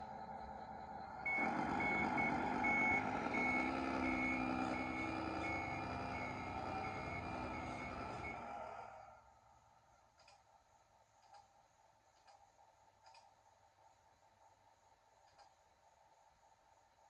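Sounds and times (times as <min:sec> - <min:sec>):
reversing beeper: 0:00.0 - 0:09.1
truck engine sound effect: 0:00.0 - 0:09.3.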